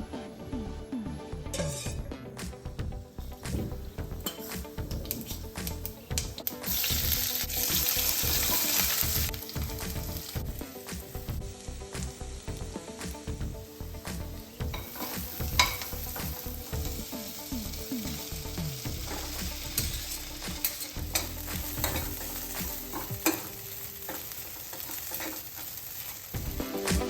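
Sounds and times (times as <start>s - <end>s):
spatula clicking and scraping pan: 4.2s - 6.9s, 8.1s - 10.0s, 14.6s - 17.0s, 19.1s - 26.3s
food frying in hot oil: 4.2s - 26.8s.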